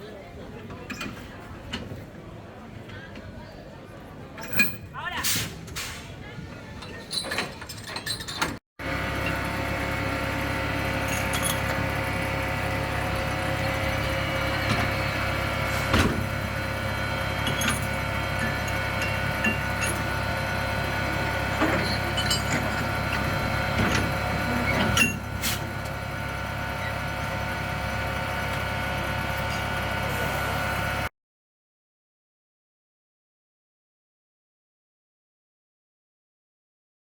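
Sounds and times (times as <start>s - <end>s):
tram knocks and rattles: 6.8s - 30.2s
tram motor whine: 8.8s - 31.1s.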